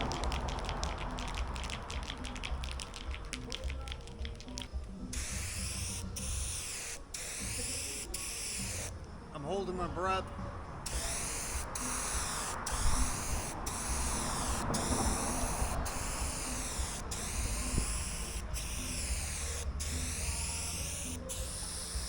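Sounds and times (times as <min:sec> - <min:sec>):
spray paint can hissing: 0:00.0 - 0:08.9, 0:10.8 - 0:22.0.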